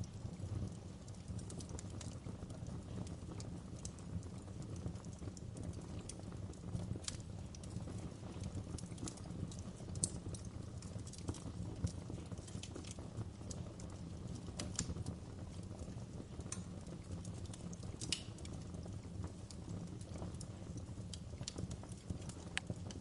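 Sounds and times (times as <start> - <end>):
low rumble of flames: 0.0 - 23.0
wood fire popping and snapping: 0.0 - 23.0.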